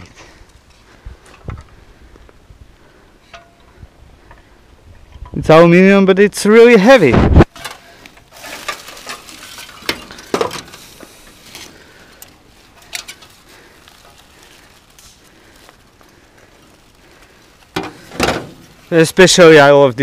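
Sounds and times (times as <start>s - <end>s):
faint rustling: 7.6s - 20.0s.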